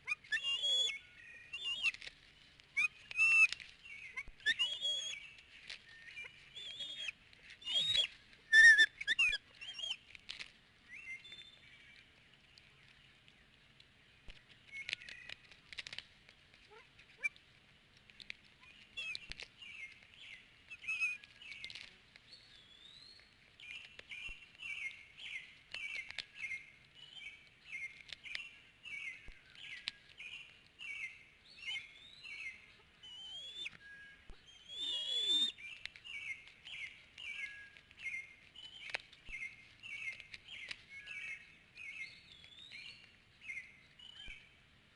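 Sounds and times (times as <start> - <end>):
eagles chirping whistles: 0.0 - 2.0, 2.8 - 5.3, 6.0 - 10.0, 20.7 - 21.3, 31.6 - 36.4.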